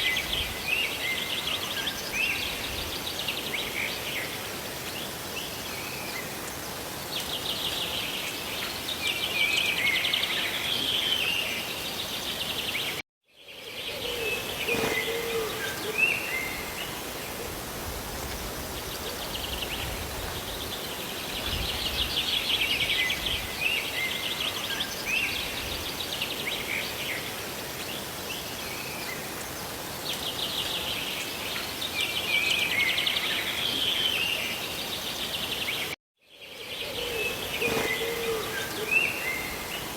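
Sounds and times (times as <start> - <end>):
small birds chirping: 4.9 - 16.9, 18.2 - 39.9
rain hissing: 14.4 - 32.4, 37.3 - 39.9.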